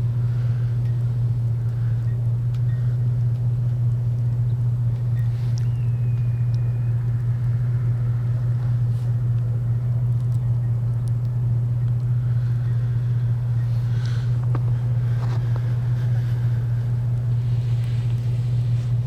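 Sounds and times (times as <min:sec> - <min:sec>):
vehicle engine idling: 0:00.0 - 0:19.0
faint whistle: 0:05.2 - 0:08.2.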